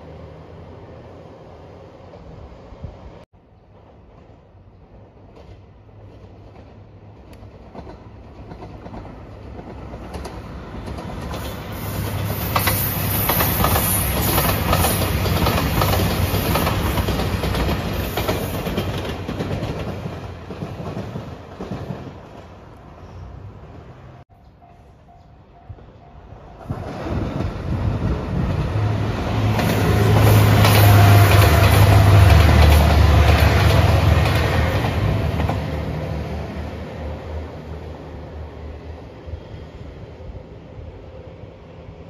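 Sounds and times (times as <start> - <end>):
diesel train passing: 0.0 - 42.0
wheels clacking over rail joints: 5.2 - 22.8, 26.6 - 36.0.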